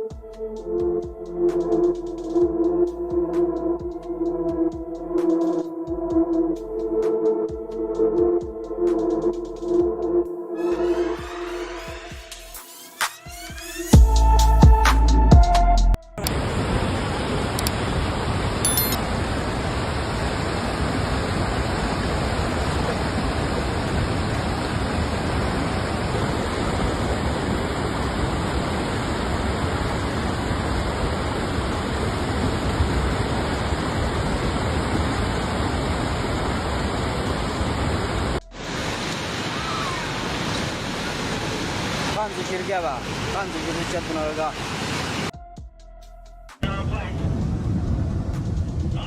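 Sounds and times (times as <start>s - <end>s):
rushing water: 16.2s - 45.3s.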